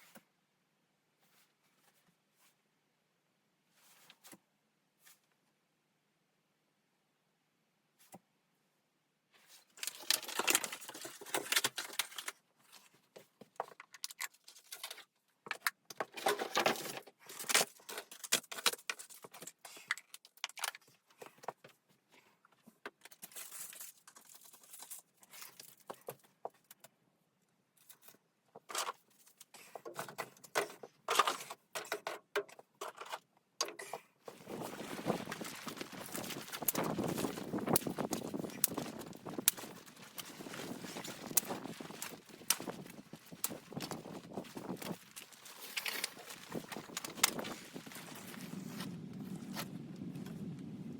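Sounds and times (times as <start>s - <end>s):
rustling and clinking of objects: 9.4s - 26.9s, 27.8s - 50.4s.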